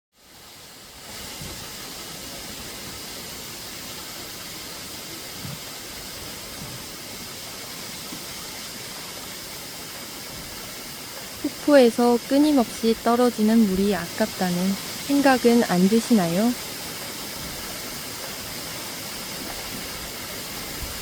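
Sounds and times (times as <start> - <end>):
waterfall rushing: 0.2 - 21.0.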